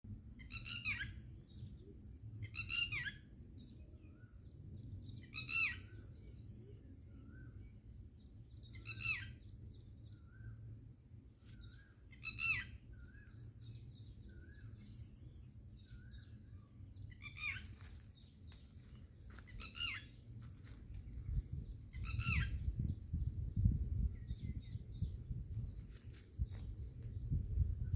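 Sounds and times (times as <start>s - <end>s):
soft bird chirps and whistles: 0.4s - 4.5s, 5.2s - 7.8s, 8.6s - 10.6s, 11.4s - 17.9s, 21.3s - 27.9s
steady low rumble: 9.3s - 27.9s.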